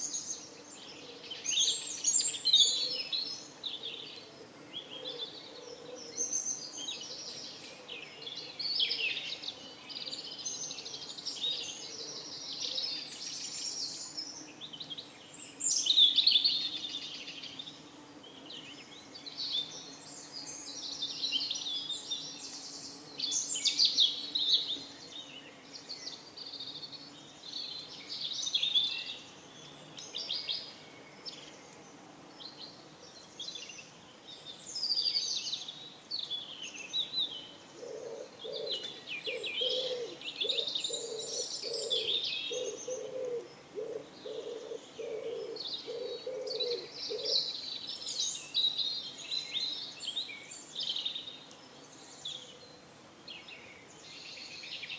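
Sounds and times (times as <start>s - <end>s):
small birds chirping: 0.0s - 54.9s
pigeon cooing: 5.0s - 6.1s, 37.8s - 47.4s.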